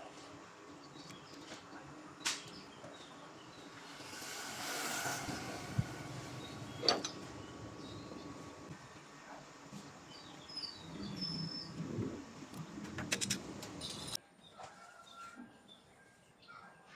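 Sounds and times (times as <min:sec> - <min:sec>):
hiss: 0:03.5 - 0:08.8.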